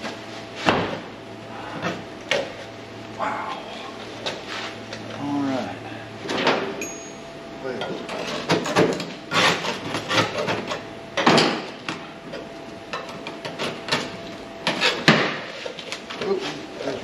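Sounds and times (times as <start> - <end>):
faint steady hum: 0.0 - 17.0
hand tool scraping sheet metal: 8.1 - 10.8.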